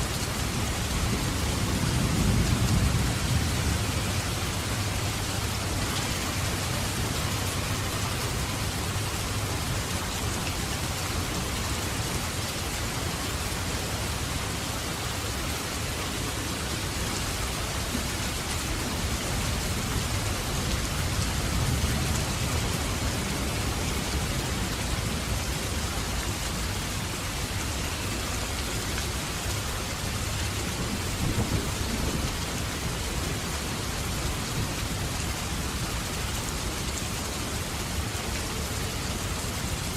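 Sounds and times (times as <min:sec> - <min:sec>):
rain pouring: 0:00.0 - 0:39.9
thunder rumbling: 0:00.8 - 0:08.0, 0:30.6 - 0:33.3.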